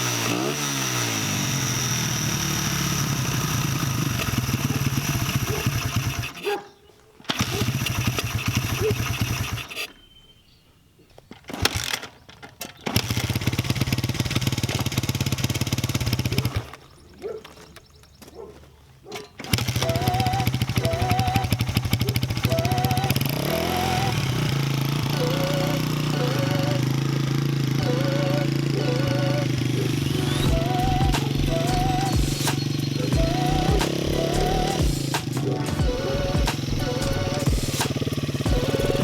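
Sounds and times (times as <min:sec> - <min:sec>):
motorcycle engine starting and idling: 0:00.0 - 0:10.5, 0:11.2 - 0:18.3, 0:19.1 - 0:39.0.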